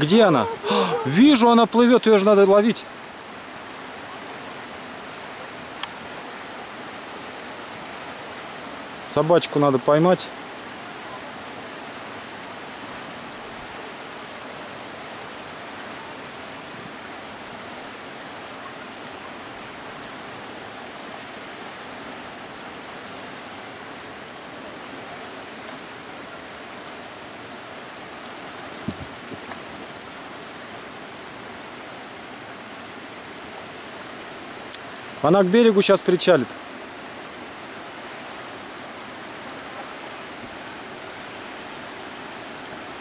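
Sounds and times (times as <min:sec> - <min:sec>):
river current rushing: 0:00.0 - 0:43.0.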